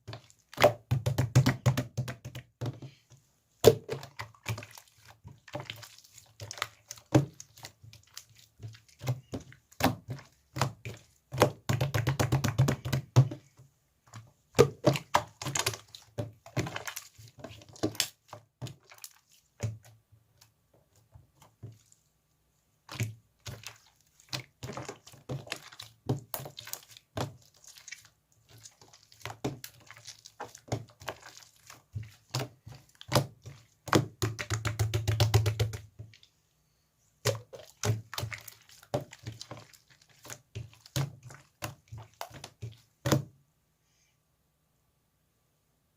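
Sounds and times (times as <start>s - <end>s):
slime squished by hand: 14.1s - 20.5s, 22.8s - 36.3s, 37.2s - 43.3s.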